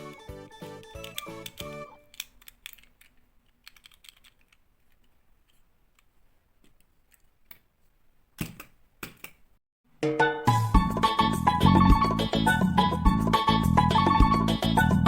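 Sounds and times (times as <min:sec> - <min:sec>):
plastic toy pieces clicking: 0:00.8 - 0:06.1.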